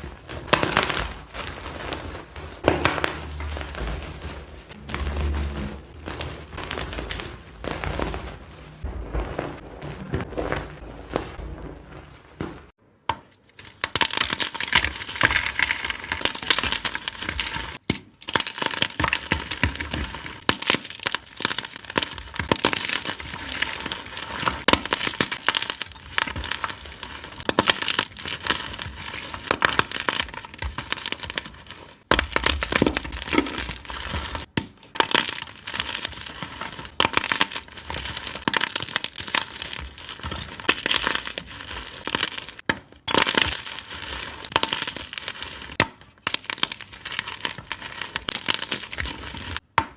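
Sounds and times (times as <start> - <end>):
chalk blocks crushed by hand: 13.6 - 49.9.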